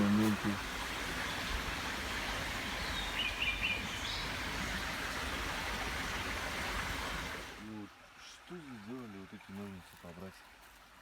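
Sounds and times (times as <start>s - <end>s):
songbird chirping: 2.7s - 4.4s.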